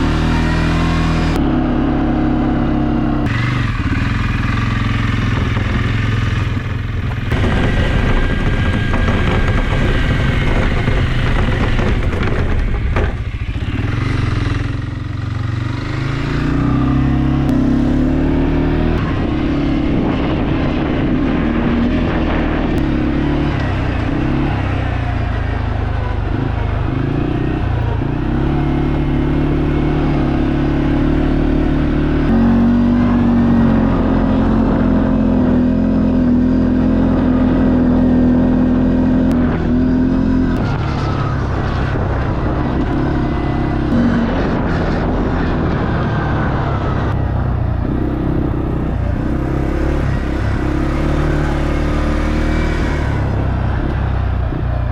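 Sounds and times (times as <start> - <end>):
quad bike engine running: 0.0 - 54.9.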